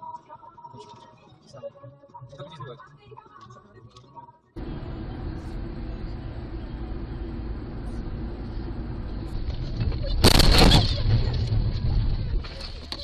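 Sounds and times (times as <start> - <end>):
car road and engine noise: 4.6 - 13.0.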